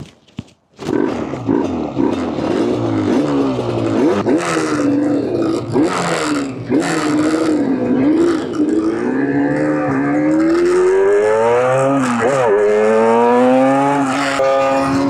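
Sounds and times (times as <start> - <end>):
motorcycle engine revving: 0.8 - 15.0.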